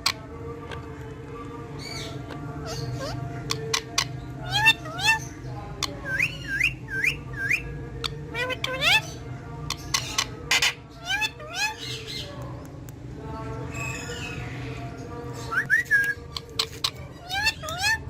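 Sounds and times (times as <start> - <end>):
parrot whistling and squawking: 1.9 - 5.3, 6.0 - 9.2, 9.9 - 12.1.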